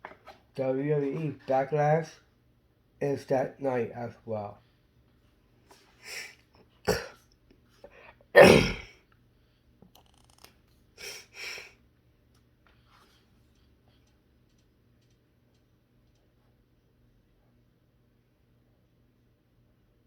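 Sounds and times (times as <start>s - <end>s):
man sniffing: 6.0s - 7.1s, 11.0s - 11.8s
man sneezing: 6.9s - 7.2s, 8.4s - 9.0s.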